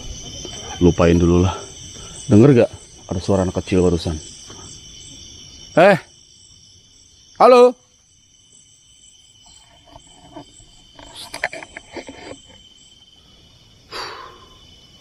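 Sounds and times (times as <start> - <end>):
insects trilling: 0.0 - 15.0
clicks and rustles: 9.5 - 12.7
short breathy burst: 13.9 - 14.6.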